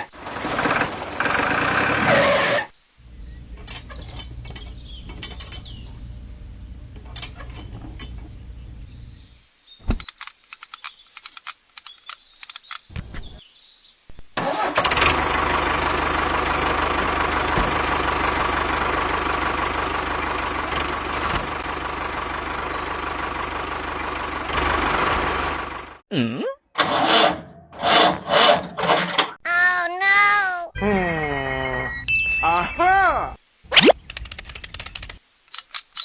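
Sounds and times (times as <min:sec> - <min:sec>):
engine running: 0:00.1 - 0:02.2, 0:03.0 - 0:09.3, 0:14.4 - 0:26.0
sharp clicks: 0:09.8 - 0:13.3, 0:33.7 - 0:36.0
short voice-like calls: 0:29.5 - 0:31.9.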